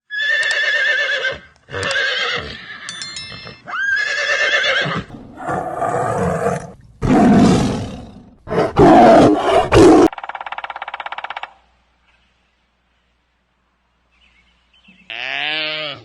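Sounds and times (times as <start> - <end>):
animal calls and roars: 3.8 - 11.6.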